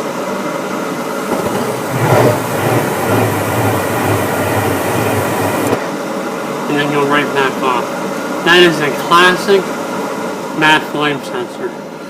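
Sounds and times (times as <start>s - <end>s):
fan hum: 0.6s - 10.5s
gas burners lighting with a rush: 1.1s - 5.9s
rumbling flame: 1.2s - 5.8s.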